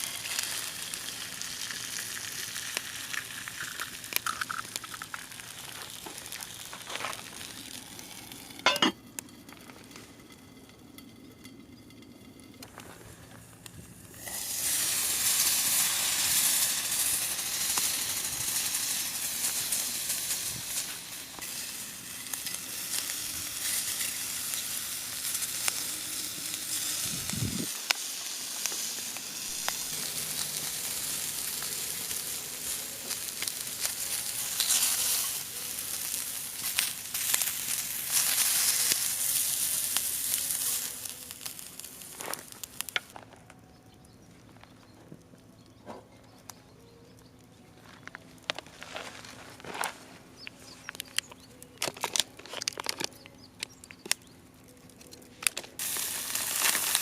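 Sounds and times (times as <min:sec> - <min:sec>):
sizzling hiss: 0:00.0 - 0:43.2, 0:55.8 - 0:57.0
wood fire crackling: 0:00.0 - 0:57.0.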